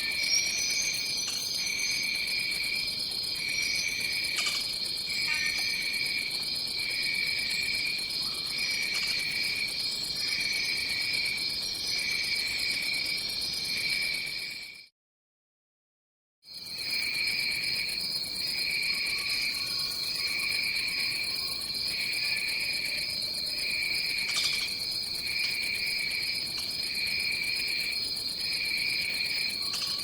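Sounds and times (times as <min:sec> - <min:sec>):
insects chirring and buzzing: 0:00.0 - 0:14.8, 0:16.5 - 0:30.0
pulsing insect trill: 0:16.8 - 0:30.0.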